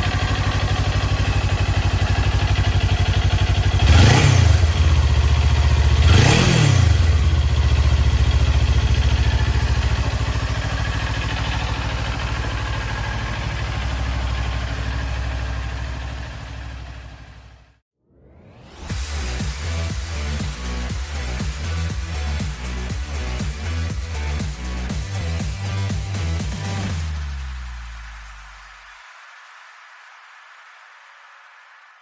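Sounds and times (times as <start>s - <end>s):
motorcycle engine idling: 0.0s - 17.8s.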